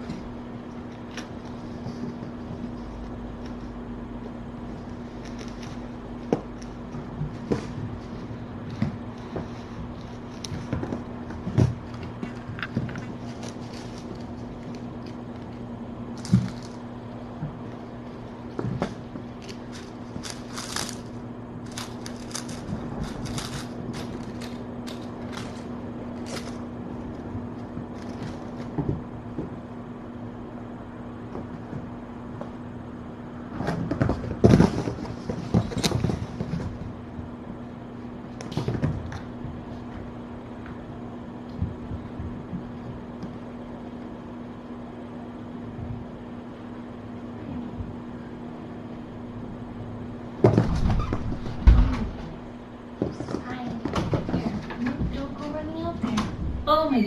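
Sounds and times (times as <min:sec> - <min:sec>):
kittens crunching dry kibble: 0:00.0 - 0:29.2
low electrical hum: 0:00.0 - 0:57.0
knocking and rustling clatter: 0:04.7 - 0:29.8, 0:33.5 - 0:37.2, 0:50.4 - 0:56.6.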